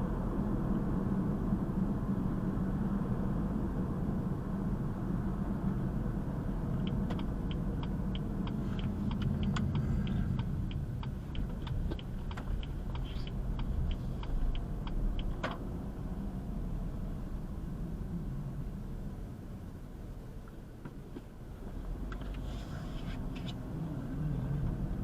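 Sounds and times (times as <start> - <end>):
motor vehicle rumble: 0.0 - 25.0
light regular ticking: 6.8 - 15.6.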